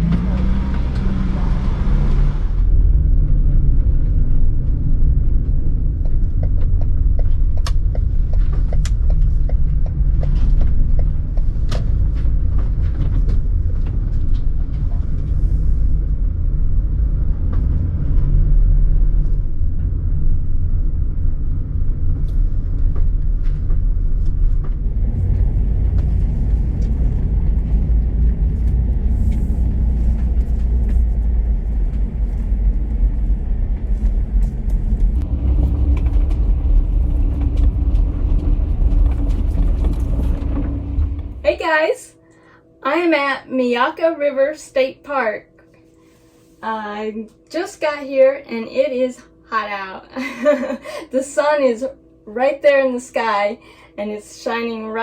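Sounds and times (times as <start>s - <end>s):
van road rumble: 0.0s - 42.3s.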